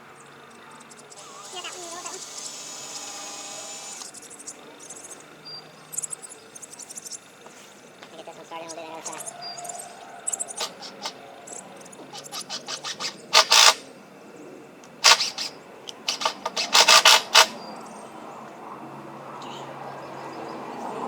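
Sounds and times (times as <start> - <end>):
screwdriver clicks: 1.2 - 4.1, 10.6 - 11.2, 12.1 - 13.8, 15.0 - 17.6
loud sharp clatter: 10.6 - 11.2, 12.2 - 13.8, 15.0 - 17.6.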